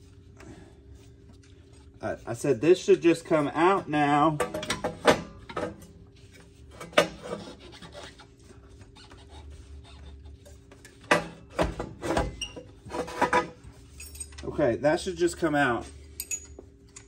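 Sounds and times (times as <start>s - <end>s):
metal rubbing and scraping: 6.2s - 10.6s, 12.0s - 14.3s.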